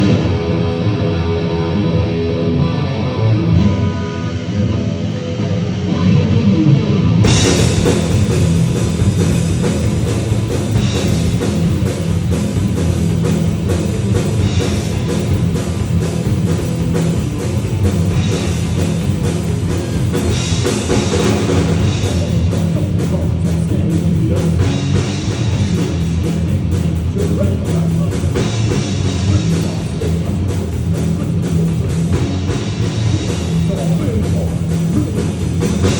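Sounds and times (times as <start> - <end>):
electric guitar: 0.0 - 35.9
heavy rock band playing: 0.0 - 35.9
drums with crashing cymbals: 7.2 - 35.9.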